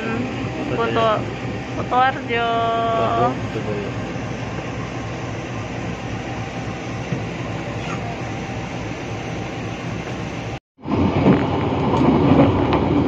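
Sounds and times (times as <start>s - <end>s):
passenger train rumbling: 0.0s - 13.0s.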